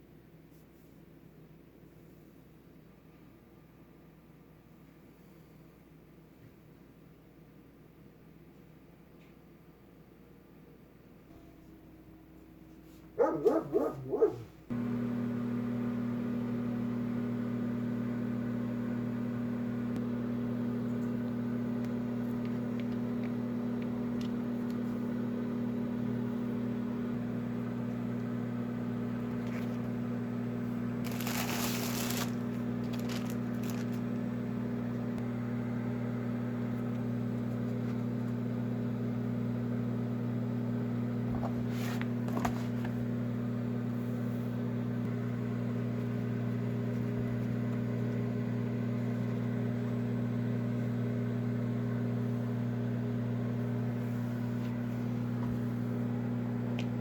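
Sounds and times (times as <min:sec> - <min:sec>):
appliance motor hum: 0:13.2 - 0:57.0.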